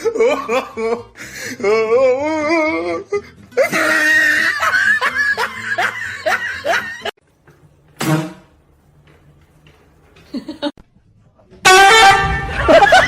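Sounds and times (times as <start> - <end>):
person laughing: 3.6 - 7.1, 10.2 - 10.8.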